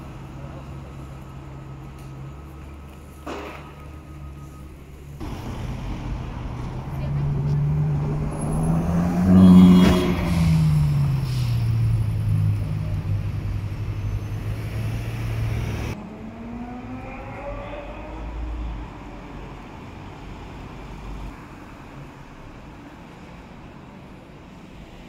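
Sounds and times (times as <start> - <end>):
street noise: 0.0 - 25.0
car engine pulling away: 1.9 - 18.9
distant engine rising in pitch: 4.1 - 18.9.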